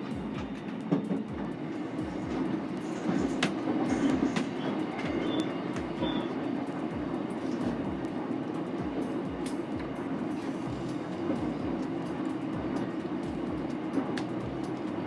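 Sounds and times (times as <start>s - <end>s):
wheels clacking over rail joints: 0.0s - 8.2s
train interior rumble: 0.0s - 15.0s.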